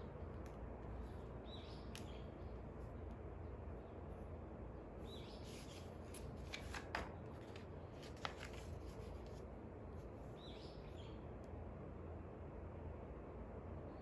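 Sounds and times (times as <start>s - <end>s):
paper rustling: 5.5s - 9.5s.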